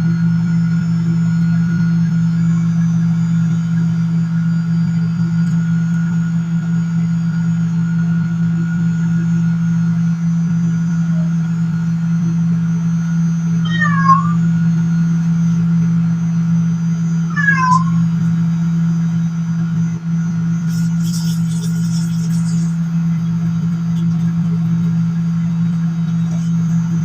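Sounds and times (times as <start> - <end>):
microwave oven humming: 0.0 - 27.0
cat meowing: 13.7 - 14.4, 17.3 - 18.1.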